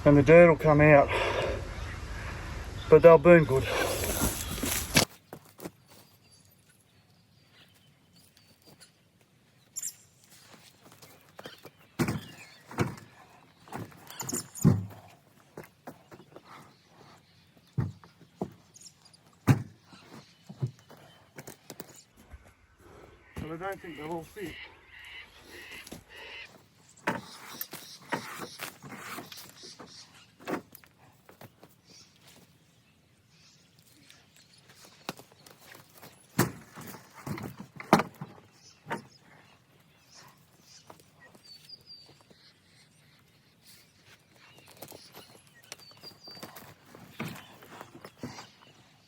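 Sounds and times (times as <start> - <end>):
logs thudding: 19.4 - 20.9, 35.9 - 39.1.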